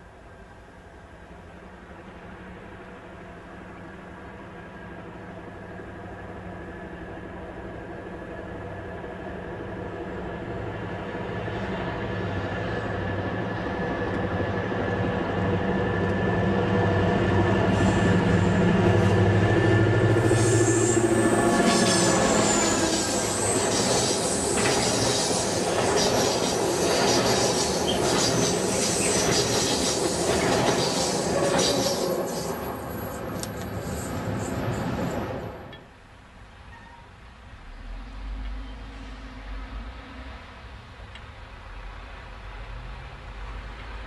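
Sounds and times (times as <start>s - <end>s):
diesel locomotive engine drone: 0.0s - 44.0s
train wheel squeal: 8.1s - 35.8s, 36.6s - 37.2s
train wheels clattering: 18.0s - 35.2s.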